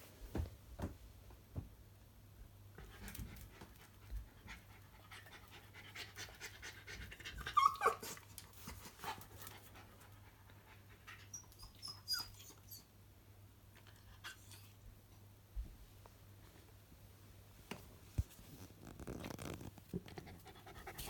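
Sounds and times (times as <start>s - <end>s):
dog panting: 20.0s - 21.0s.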